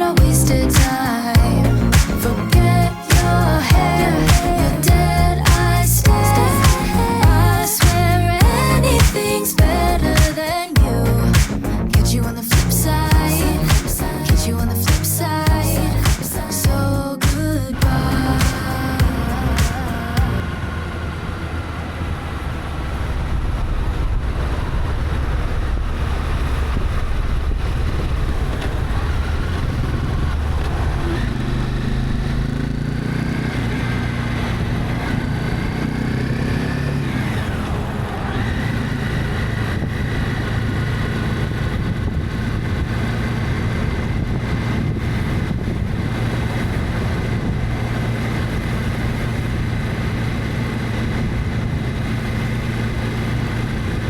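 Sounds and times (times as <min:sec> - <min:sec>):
wind and road noise: 0:00.0 - 0:54.0
motorcycle engine running: 0:24.3 - 0:54.0.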